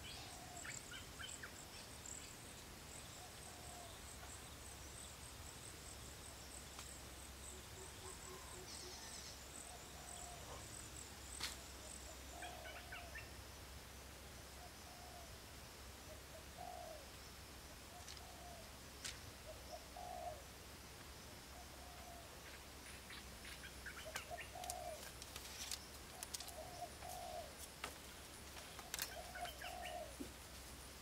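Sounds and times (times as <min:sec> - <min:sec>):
bird cooing: 0:00.0 - 0:01.3, 0:03.2 - 0:04.0, 0:07.8 - 0:10.7, 0:14.6 - 0:15.3, 0:16.1 - 0:17.1, 0:17.9 - 0:18.7, 0:19.5 - 0:20.4, 0:21.5 - 0:22.3, 0:23.8 - 0:25.2, 0:26.1 - 0:27.6, 0:28.6 - 0:30.3
bamboo strips clicking: 0:24.1 - 0:26.6, 0:28.8 - 0:29.2.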